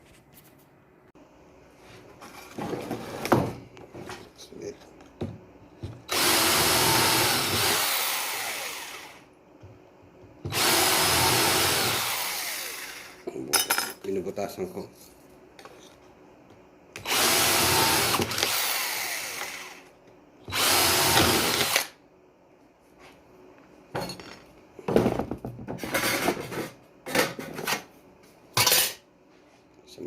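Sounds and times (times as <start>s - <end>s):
electric drill boring: 6.1s - 9.3s, 10.5s - 13.2s, 17.0s - 19.9s, 20.5s - 22.0s.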